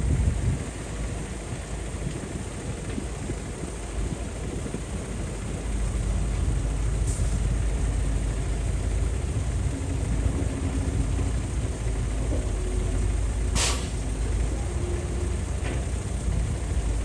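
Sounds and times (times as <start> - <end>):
heavy diesel engines rumbling: 0.0 - 17.0
short hiss: 13.6 - 14.0.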